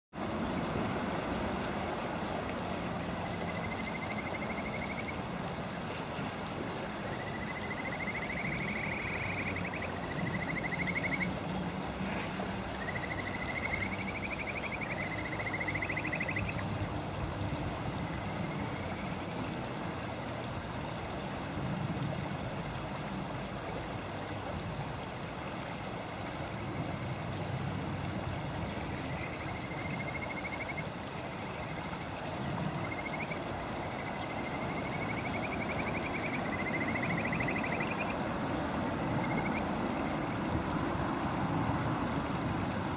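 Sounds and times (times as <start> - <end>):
frog trilling: 3.4 - 5.2, 7.1 - 11.3, 12.8 - 16.6, 32.8 - 38.2, 39.2 - 40.2.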